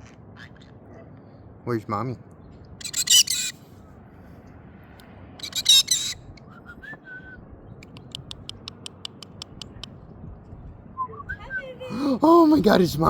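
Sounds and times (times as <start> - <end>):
bird harsh squawk: 2.8 - 3.6, 5.4 - 6.4
rapid high bird chirps: 2.8 - 3.6, 5.4 - 6.2, 7.8 - 9.9
faint whistled bird notes: 10.9 - 11.6.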